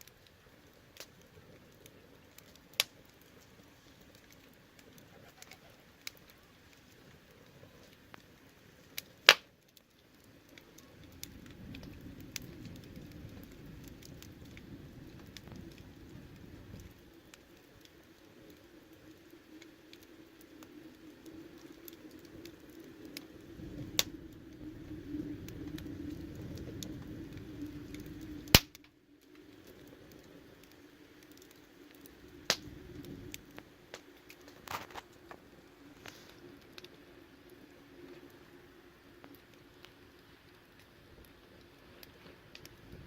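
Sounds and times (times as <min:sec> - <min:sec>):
low roar of burning fire: 0:00.0 - 0:43.0
wood fire crackling: 0:00.0 - 0:43.0
loud sharp fire pops: 0:09.2 - 0:09.5, 0:28.4 - 0:28.9, 0:32.4 - 0:32.7.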